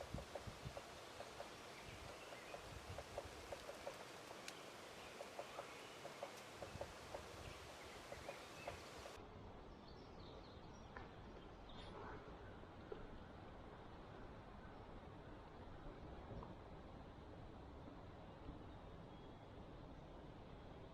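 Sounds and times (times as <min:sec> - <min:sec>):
wild turkey clucks: 0:00.0 - 0:09.2.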